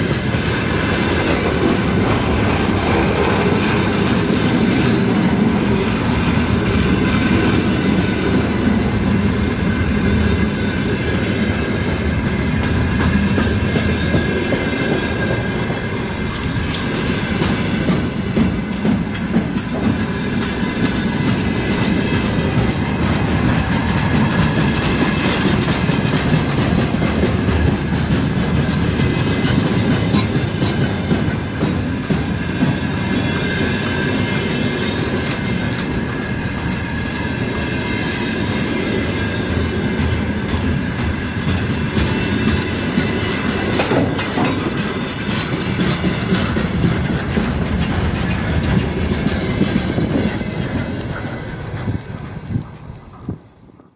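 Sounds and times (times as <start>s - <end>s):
freight train rumbling past: 0.0s - 53.9s
wheels clattering over rail joints: 0.0s - 53.9s.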